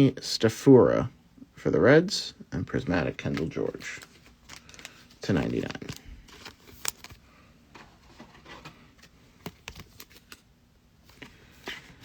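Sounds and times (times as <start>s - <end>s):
cards clicking and scuffing: 7.8s - 10.5s.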